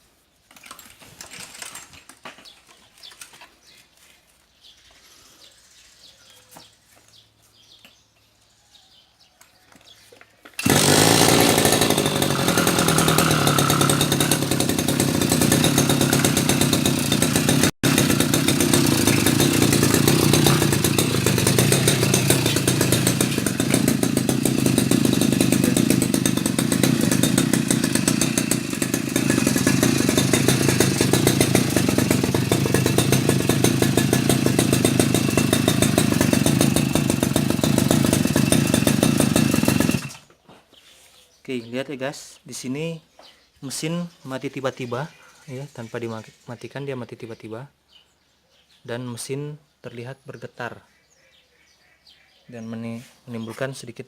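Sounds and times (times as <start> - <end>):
brush cutter engine running: 10.6 - 40.3.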